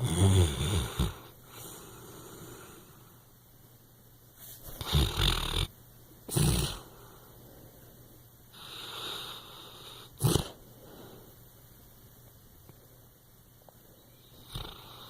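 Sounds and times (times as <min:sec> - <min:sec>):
dog snoring: 0:00.0 - 0:02.8, 0:04.7 - 0:05.7, 0:06.3 - 0:06.9, 0:08.5 - 0:10.6, 0:14.3 - 0:15.0.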